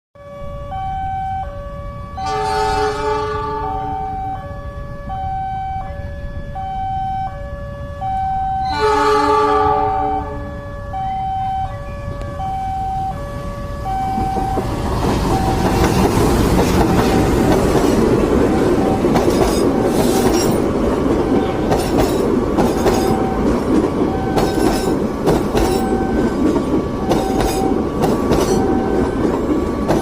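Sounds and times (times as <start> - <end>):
level crossing two-tone alarm: 0.2 - 16.1, 22.8 - 29.6
train horn blasts: 2.2 - 4.5, 8.6 - 10.8.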